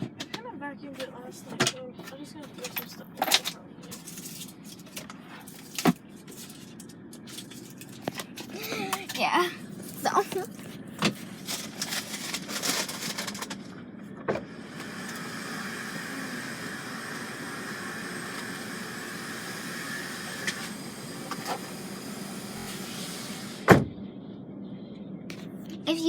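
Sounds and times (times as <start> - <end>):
vacuum running: 0.9 - 24.0
rustling: 9.7 - 13.6.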